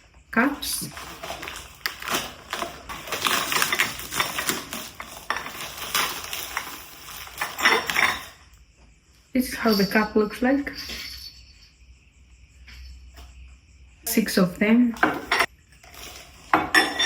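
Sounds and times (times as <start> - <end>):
cups clinking and knocking: 0.8 - 8.6, 10.6 - 11.6, 14.9 - 17.0.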